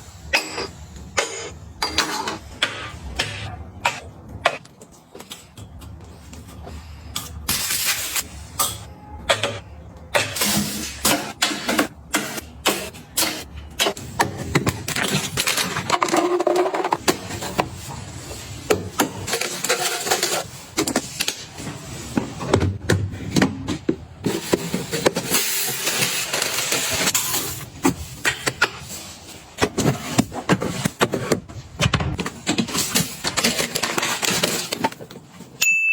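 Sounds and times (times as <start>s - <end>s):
items clicking and knocking: 0.3s - 35.6s.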